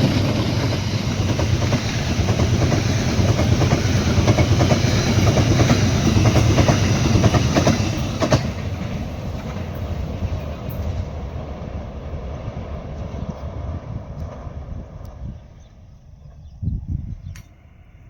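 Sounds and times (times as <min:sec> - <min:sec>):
wheels clacking over rail joints: 0:00.0 - 0:11.8
train rumbling over a bridge: 0:00.0 - 0:18.0.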